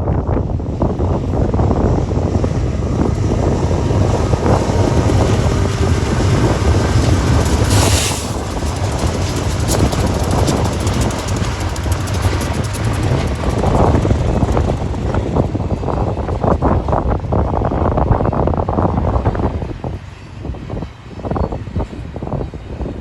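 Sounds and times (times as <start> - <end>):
wind buffeting microphone: 0.0 - 23.0
brief hiss: 7.7 - 8.4.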